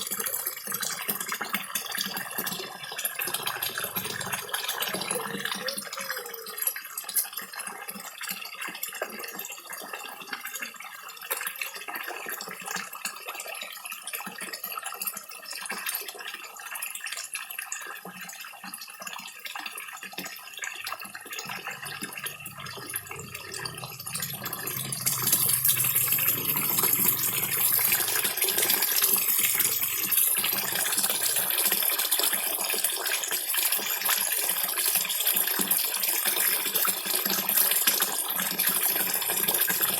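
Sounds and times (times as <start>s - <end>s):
small waterfall trickling: 0.0s - 39.9s.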